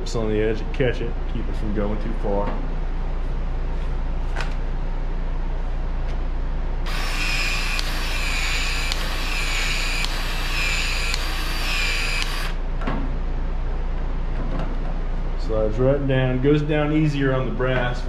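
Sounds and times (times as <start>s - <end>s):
expansion tool motor whining: 6.8s - 12.6s
tool head clicking: 6.9s - 12.6s.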